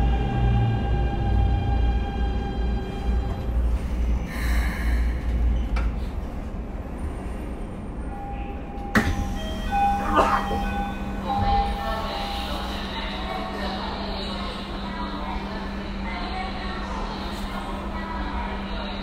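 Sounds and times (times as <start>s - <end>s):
train interior rumble: 0.0s - 19.0s.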